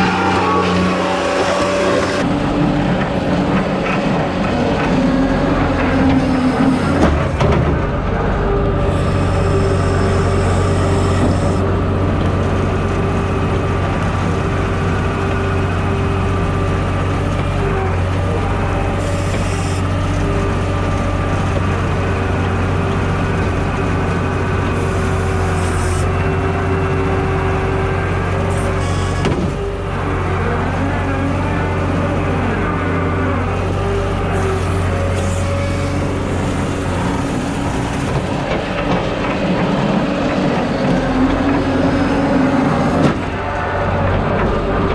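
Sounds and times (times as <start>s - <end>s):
steady higher tone: 0.0s - 2.4s
loader engine drone: 0.0s - 44.9s.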